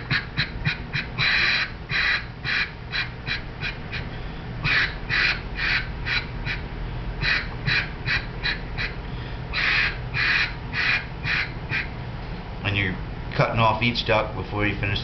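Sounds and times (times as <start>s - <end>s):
duck call quacks: 0.0s - 6.6s, 7.2s - 11.9s.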